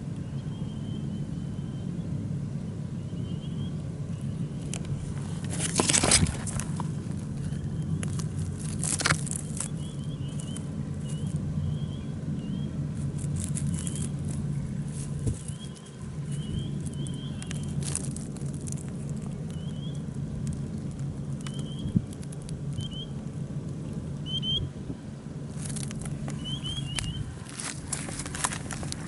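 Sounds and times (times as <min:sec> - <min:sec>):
steady low hum: 0:00.0 - 0:29.0
brief rustles: 0:04.8 - 0:11.4, 0:25.6 - 0:29.0.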